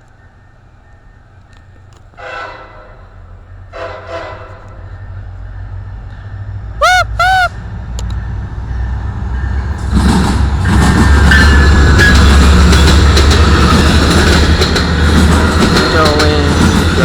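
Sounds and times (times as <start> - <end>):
train passing: 0.0 - 17.0
train horn honks: 2.2 - 4.8.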